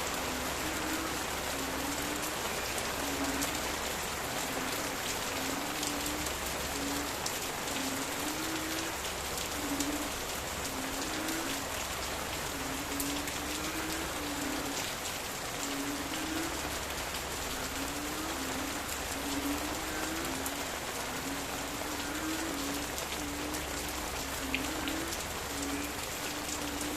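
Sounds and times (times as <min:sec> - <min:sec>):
frogs croaking: 0:00.0 - 0:26.9
rain falling on leaves: 0:00.0 - 0:26.9.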